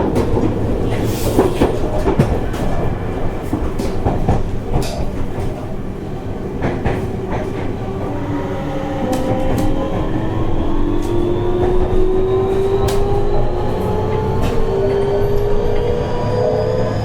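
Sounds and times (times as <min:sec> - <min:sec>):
wheels clacking over rail joints: 0:00.0 - 0:08.2
train rumbling: 0:00.0 - 0:17.0
rising motor whine: 0:08.6 - 0:17.0.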